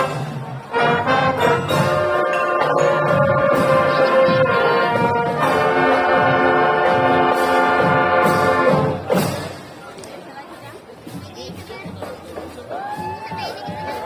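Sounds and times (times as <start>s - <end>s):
musical bus air horn chords: 0.0s - 3.5s, 4.2s - 8.9s.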